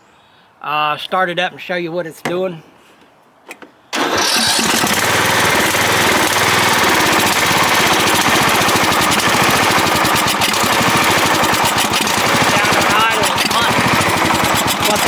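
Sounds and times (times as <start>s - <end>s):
mower engine starting and running: 3.9s - 15.0s.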